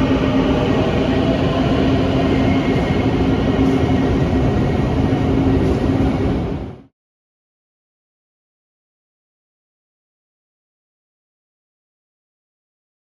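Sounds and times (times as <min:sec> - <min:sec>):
metro train running: 0:00.0 - 0:06.9.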